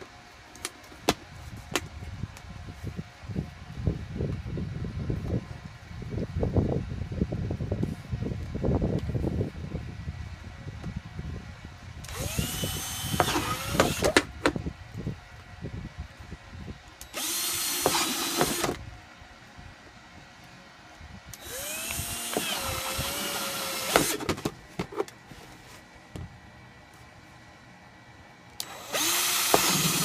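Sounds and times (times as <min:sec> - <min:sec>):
power drill boring: 0:12.1 - 0:14.2, 0:17.0 - 0:18.8, 0:21.4 - 0:24.3, 0:28.6 - 0:30.0.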